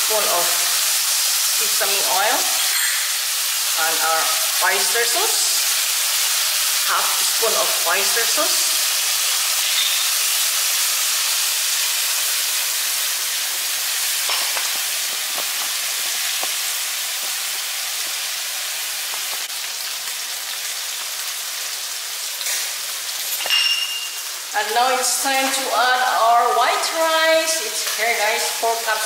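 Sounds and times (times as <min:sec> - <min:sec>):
food sizzling in a wok: 0:00.0 - 0:29.0.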